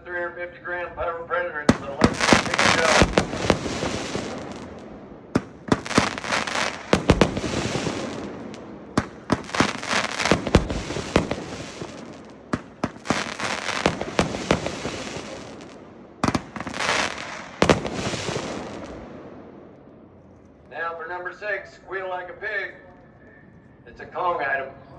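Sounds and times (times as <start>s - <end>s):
firework hiss: 1.7s - 4.8s, 5.4s - 19.0s
firework cake bangs: 1.7s - 19.2s.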